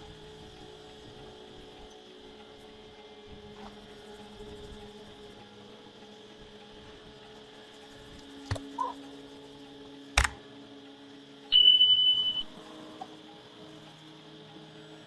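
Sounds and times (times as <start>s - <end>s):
sharp clicks: 10.2s - 10.4s
high-pitched beep: 11.5s - 12.5s.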